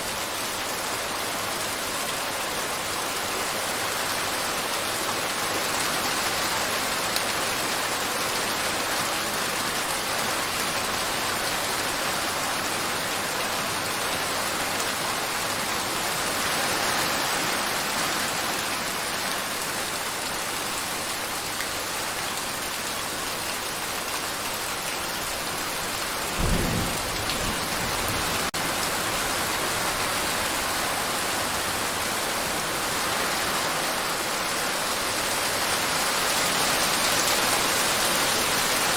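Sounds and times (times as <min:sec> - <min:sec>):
steady rain falling: 0:00.0 - 0:38.9
low rumble of thunder: 0:26.4 - 0:28.9.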